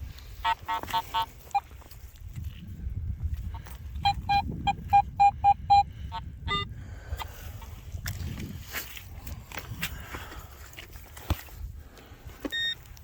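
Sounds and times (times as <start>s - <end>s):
metal detector beeping: 0.4s - 1.9s, 3.9s - 6.7s, 12.4s - 13.0s.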